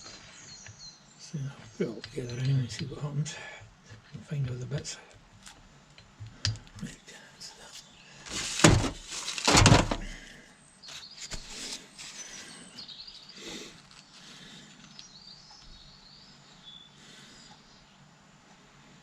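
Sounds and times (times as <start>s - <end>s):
metal parts clunking: 8.3s - 10.2s
faint bird chirps: 10.5s - 18.1s.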